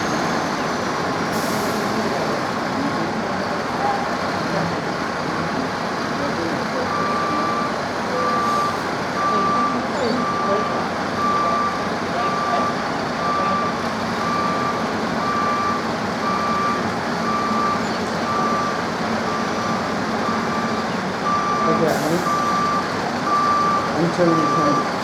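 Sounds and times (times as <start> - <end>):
engine and site noise: 0.0 - 25.0
reversing alarm beeping: 6.8 - 25.0.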